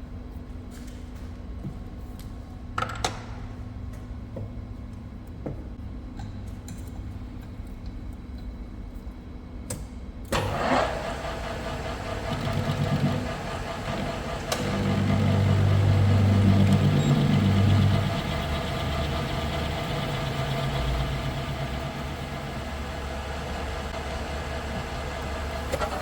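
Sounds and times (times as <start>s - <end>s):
metal lathe humming: 10.4s - 26.0s
rough noise with ringing tones: 13.1s - 26.0s.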